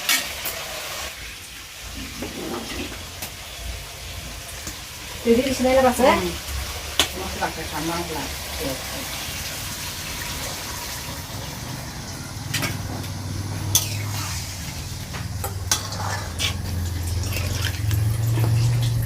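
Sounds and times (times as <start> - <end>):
utensils clinking against pots: 0.0 - 0.7, 12.0 - 19.0
water running: 0.0 - 19.0.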